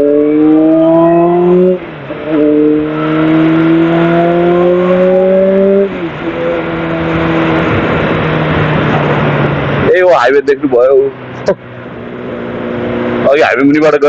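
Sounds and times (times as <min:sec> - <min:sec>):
motorcycle engine accelerating: 0:00.0 - 0:14.0
rushing noise: 0:03.0 - 0:13.4.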